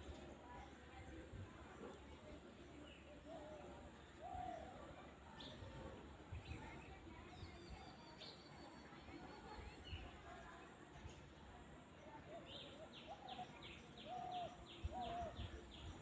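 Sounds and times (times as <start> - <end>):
faint high bird chirps: 6.3 - 10.2.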